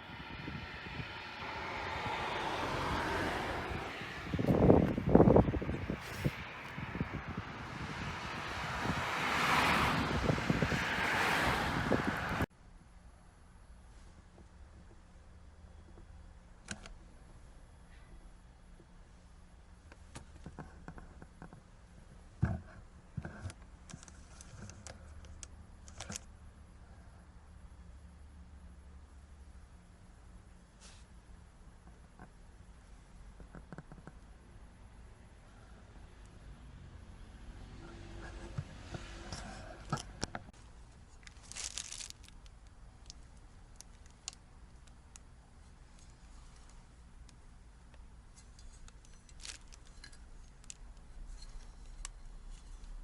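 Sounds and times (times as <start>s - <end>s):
crinkling rustle: 40.6s - 53.0s.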